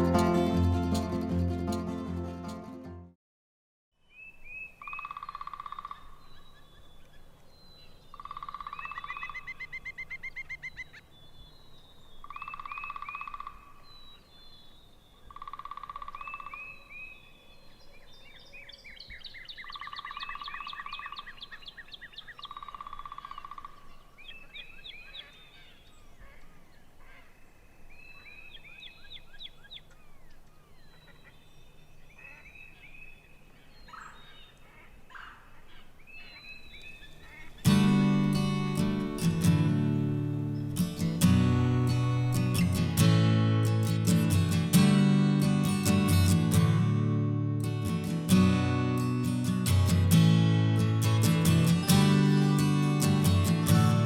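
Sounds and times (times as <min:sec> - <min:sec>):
small birds chirping and trilling: 0:04.1 - 0:37.8.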